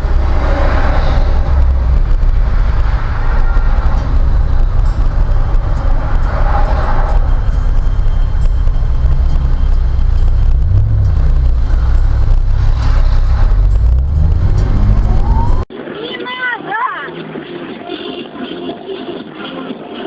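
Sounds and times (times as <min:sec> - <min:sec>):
car engine and road rumble: 0:00.0 - 0:15.8.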